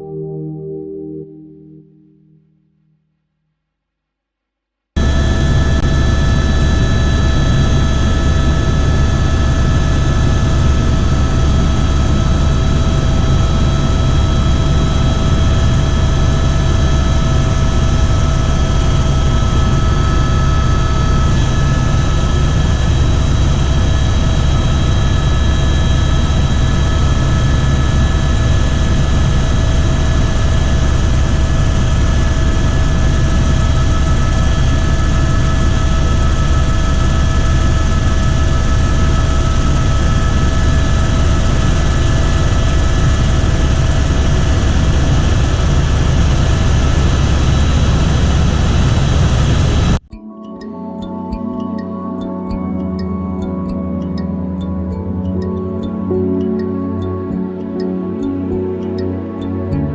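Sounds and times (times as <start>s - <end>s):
helicopter engine and rotor: 5.0s - 50.0s.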